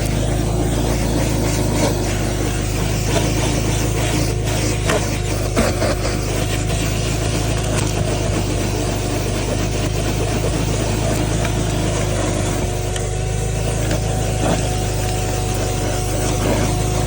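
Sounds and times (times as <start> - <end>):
shop vacuum running: 0.0 - 17.0.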